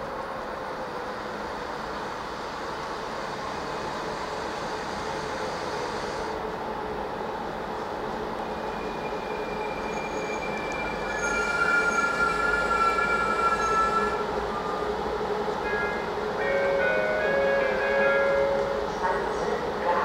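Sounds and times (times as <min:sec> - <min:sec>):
train rumbling: 0:00.0 - 0:20.0
wheels and brakes squealing: 0:08.6 - 0:14.9.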